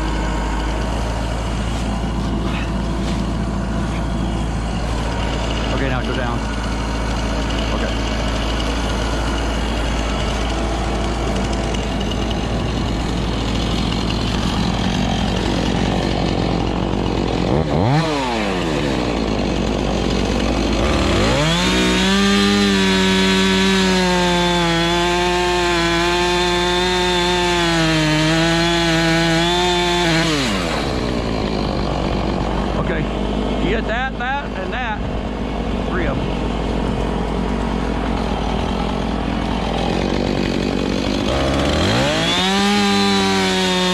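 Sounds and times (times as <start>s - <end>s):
tractor diesel engine idling: 0.0s - 22.8s, 30.5s - 42.3s
chainsaw cutting log: 0.0s - 43.9s.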